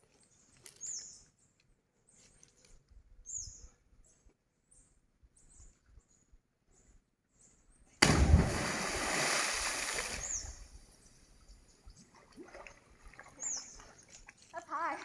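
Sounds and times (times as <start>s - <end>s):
small birds chirping: 0.0s - 8.0s, 10.0s - 12.2s, 13.2s - 14.9s
loud splash into pool: 8.0s - 10.4s.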